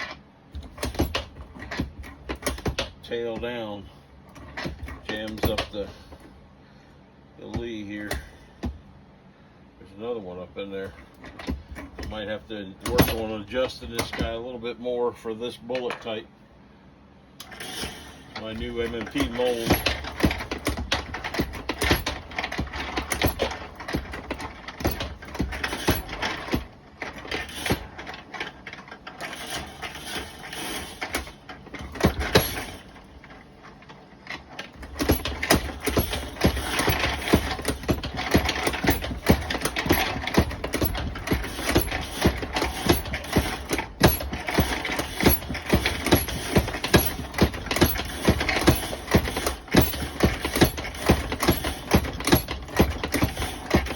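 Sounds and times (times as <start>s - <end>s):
bullet feeder running: 17.4s - 53.9s.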